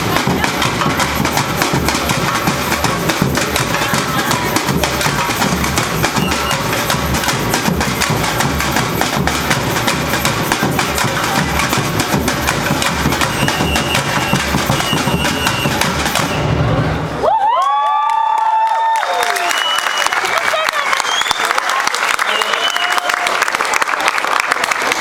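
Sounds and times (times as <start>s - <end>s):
bass drum pattern: 0.0s - 16.6s
samba percussion ensemble: 0.0s - 17.2s.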